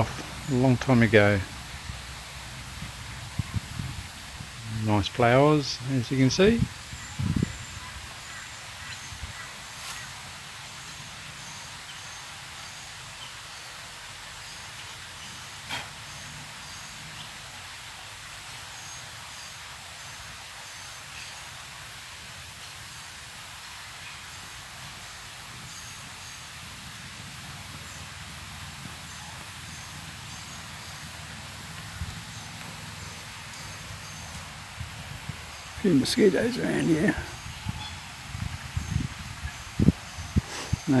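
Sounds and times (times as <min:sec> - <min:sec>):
steady hiss: 0:00.0 - 0:41.0.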